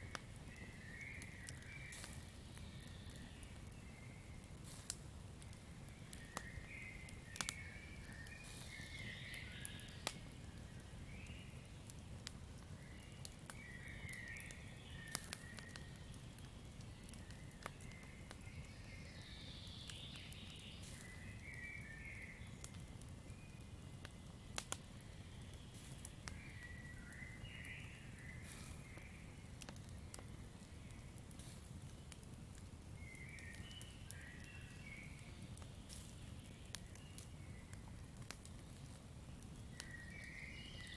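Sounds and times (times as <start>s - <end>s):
campfire crackling and popping: 0.0s - 40.9s
chirping calls from forest: 39.6s - 40.9s.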